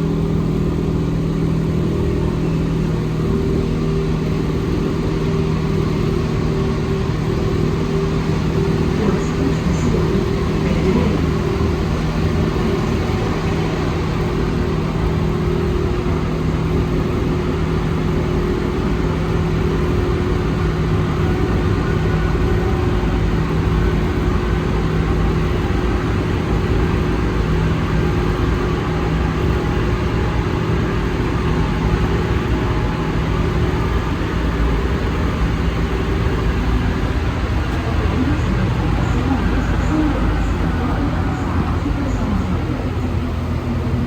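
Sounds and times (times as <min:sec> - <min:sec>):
low steady tones: 0:00.0 - 0:44.0
metro train running noise: 0:00.0 - 0:44.0.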